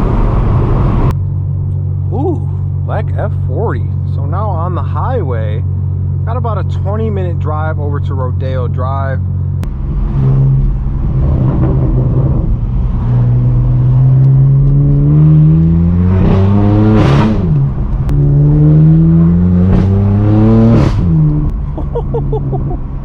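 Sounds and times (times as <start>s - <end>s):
car exhaust accelerating: 0.0s - 23.0s
exhaust crackle at gear shift: 9.5s - 23.0s.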